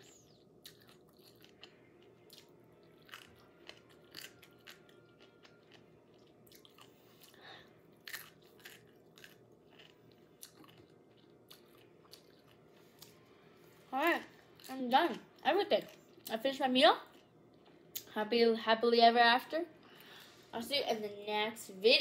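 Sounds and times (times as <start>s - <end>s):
crunchy chewing: 0.0s - 13.2s.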